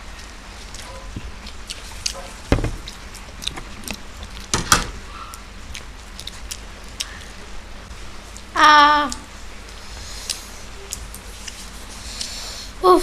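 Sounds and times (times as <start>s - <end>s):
loud knocks: 2.5s - 2.9s.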